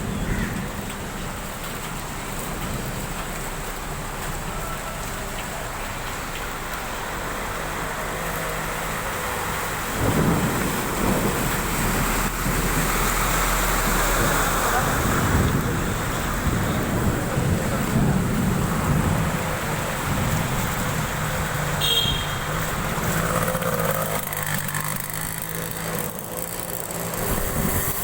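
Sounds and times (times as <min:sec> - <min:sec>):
heavy rain pouring: 0:00.0 - 0:28.0
strong wind: 0:09.7 - 0:23.5, 0:27.1 - 0:28.0.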